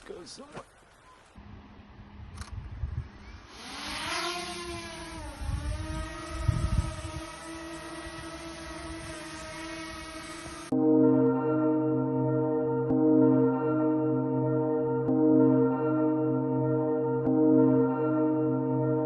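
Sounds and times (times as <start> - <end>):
drone motors whining: 2.4 - 10.7.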